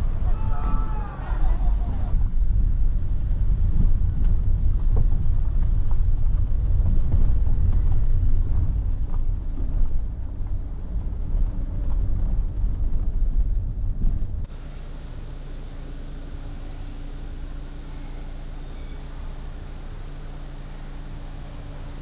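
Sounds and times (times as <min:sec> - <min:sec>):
wind buffeting microphone: 0:00.0 - 0:14.5
vehicle low rumble on road: 0:00.0 - 0:22.0.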